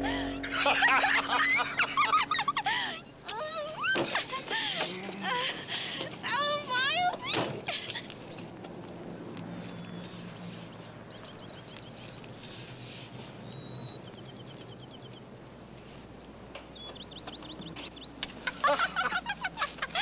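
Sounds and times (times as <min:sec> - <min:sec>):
small bird chirping: 0:16.2 - 0:18.4.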